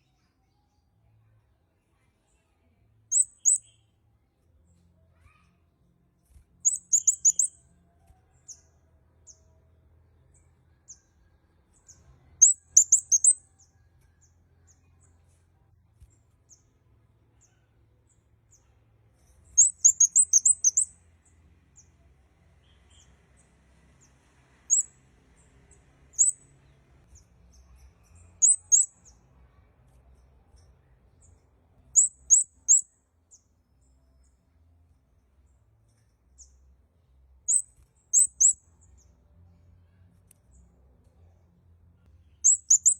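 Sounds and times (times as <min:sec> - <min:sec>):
bird high thin chirps: 0:03.1 - 0:04.0, 0:06.6 - 0:07.7, 0:12.4 - 0:13.6, 0:19.2 - 0:20.9, 0:24.7 - 0:24.9, 0:26.2 - 0:26.4, 0:27.5 - 0:29.2, 0:31.3 - 0:32.8, 0:37.5 - 0:38.6, 0:42.4 - 0:42.9.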